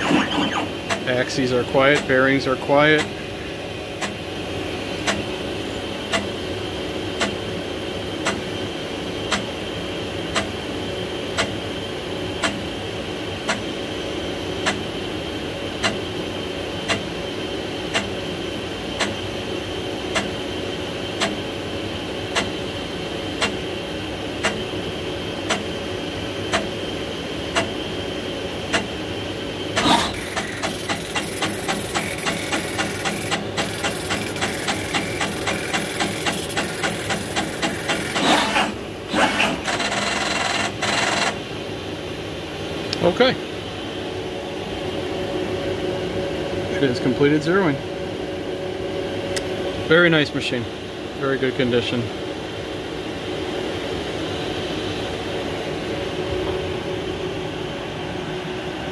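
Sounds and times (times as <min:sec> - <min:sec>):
machine hum: 0:00.0 - 0:58.9
sharp machine clicks: 0:29.8 - 0:41.4.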